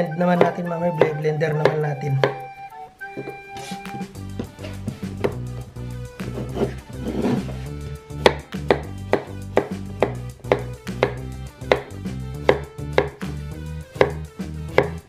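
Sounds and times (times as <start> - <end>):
background music: 0.0 - 15.0
knife knocking on wooden board: 1.6 - 2.4, 4.4 - 5.4, 8.2 - 13.2, 14.0 - 14.2
knife slicing zucchini: 3.3 - 3.9, 8.2 - 11.9.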